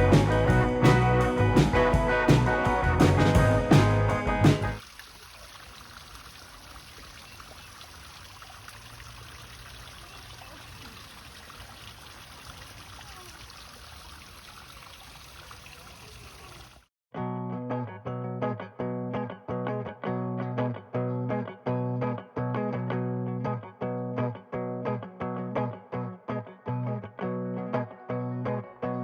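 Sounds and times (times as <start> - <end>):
music: 0.0 - 4.8, 17.2 - 29.0
water trickling and splashing: 4.7 - 16.9.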